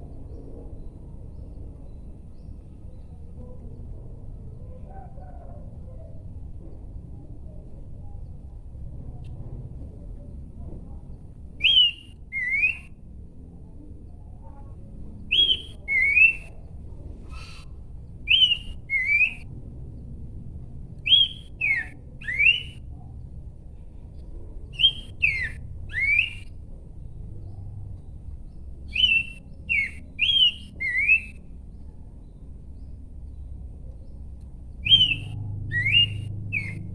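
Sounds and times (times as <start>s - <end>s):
low background hum: 0.0s - 36.9s
bird whistling song: 11.6s - 13.0s, 15.3s - 16.6s, 17.2s - 19.5s, 21.0s - 22.9s, 24.7s - 26.5s, 28.8s - 31.4s, 34.8s - 36.9s.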